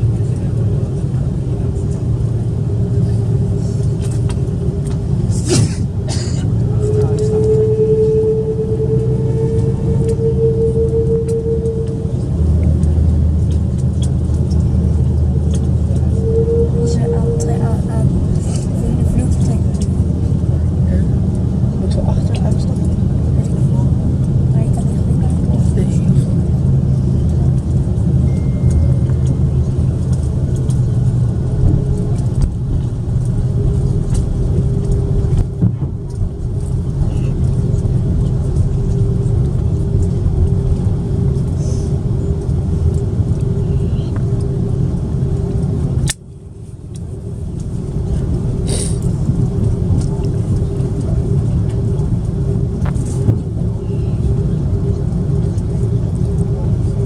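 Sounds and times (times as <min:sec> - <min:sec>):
aircraft cabin rumble: 0:00.0 - 0:57.0
steady tone: 0:06.6 - 0:14.0, 0:15.2 - 0:21.0, 0:28.0 - 0:40.4.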